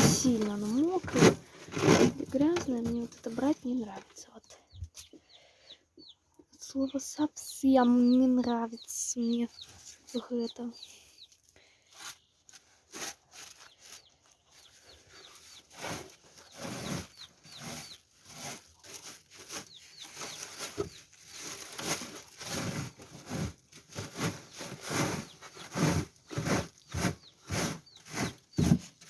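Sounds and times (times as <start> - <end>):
litter scraping and rustling: 0.0 - 4.3, 12.5 - 29.0
chicks peeping: 0.0 - 29.0.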